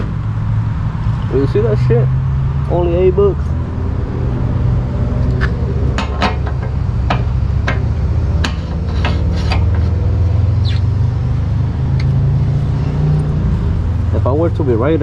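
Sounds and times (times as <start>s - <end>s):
sharp clicks and knocks: 5.2s - 9.9s.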